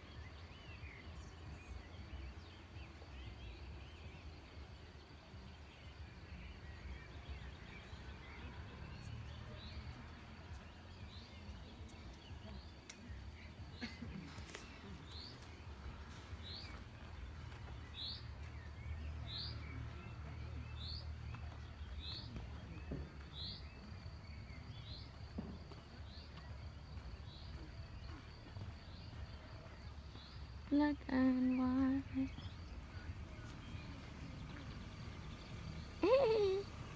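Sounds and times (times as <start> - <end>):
low outdoor rumble: 6.7 - 36.9.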